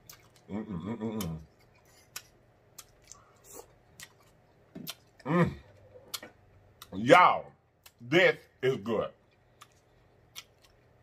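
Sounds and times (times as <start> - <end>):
man chewing food: 0.0 - 7.0, 9.2 - 11.0
man humming: 0.5 - 1.5.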